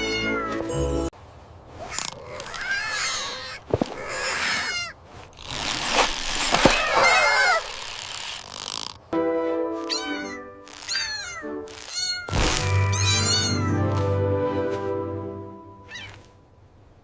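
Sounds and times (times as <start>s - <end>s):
cat meowing: 0.0s - 0.7s, 1.9s - 5.0s, 9.8s - 14.0s, 15.8s - 16.3s
background music with held notes: 0.0s - 1.1s, 9.2s - 15.9s.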